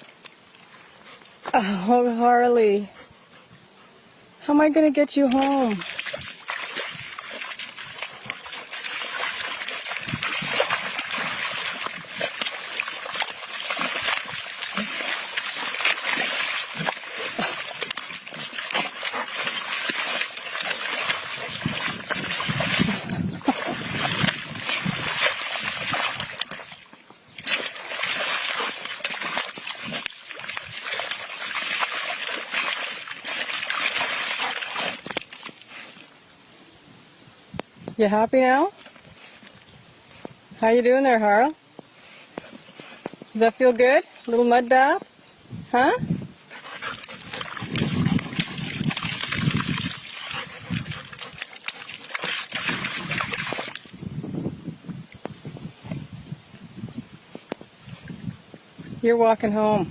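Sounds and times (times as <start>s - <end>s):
water drips: 5.2s - 36.1s
dog splashing in mud: 5.2s - 36.2s, 46.5s - 54.2s.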